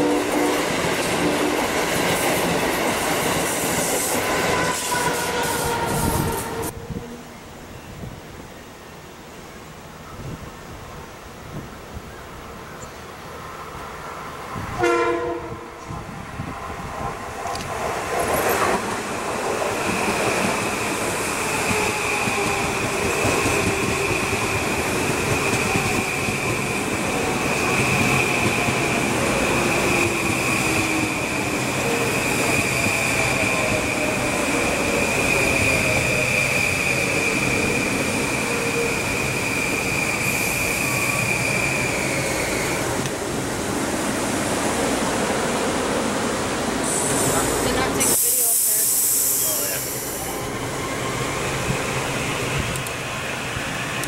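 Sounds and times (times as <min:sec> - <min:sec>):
train cars rumbling past: 0:10.4 - 0:54.0.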